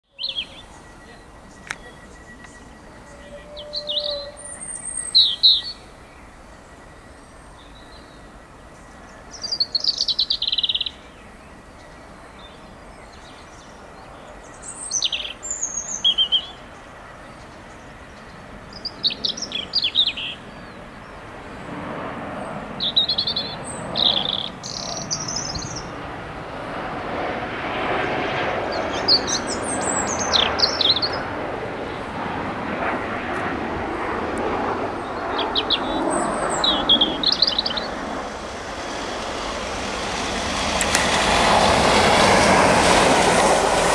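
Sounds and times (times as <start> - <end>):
diesel locomotive approaching: 0.1 - 14.7, 28.7 - 43.9
small birds chirping: 0.1 - 21.8, 22.4 - 26.0, 27.9 - 39.2.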